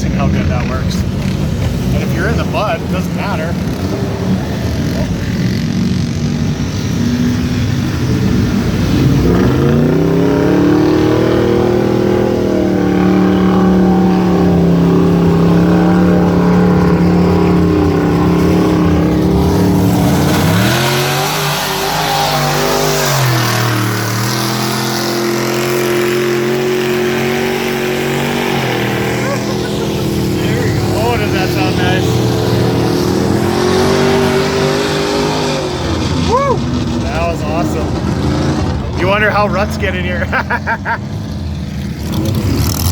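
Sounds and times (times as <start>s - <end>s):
truck engine revving: 0.0s - 42.9s.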